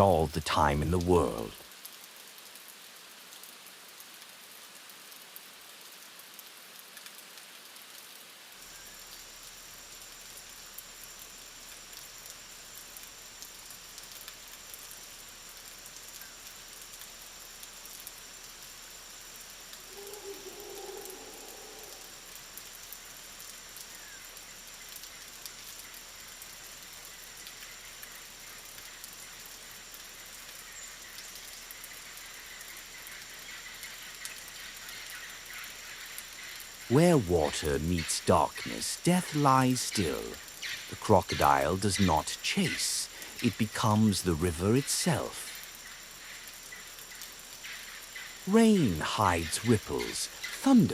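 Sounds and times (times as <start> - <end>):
rain in forest: 0.0 - 50.9.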